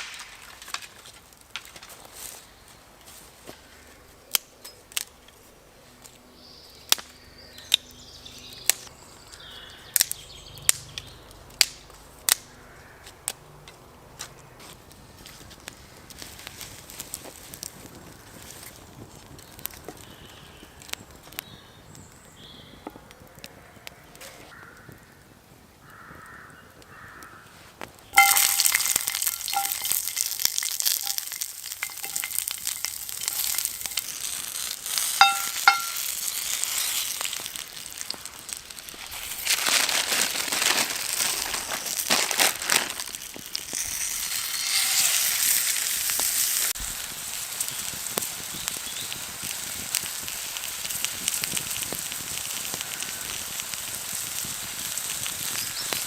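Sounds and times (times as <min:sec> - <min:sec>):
burger sizzling over campfire: 0:14.6 - 0:22.7, 0:25.9 - 0:56.0.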